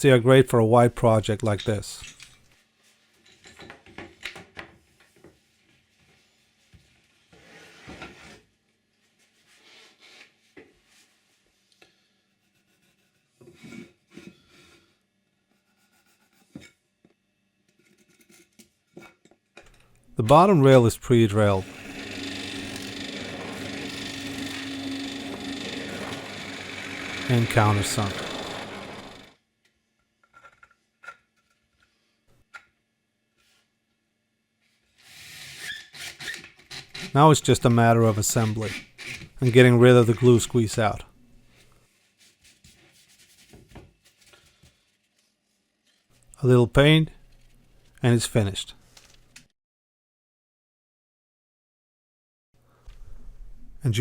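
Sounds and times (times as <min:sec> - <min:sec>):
scraping and rubbing on wood: 0:21.5 - 0:29.3.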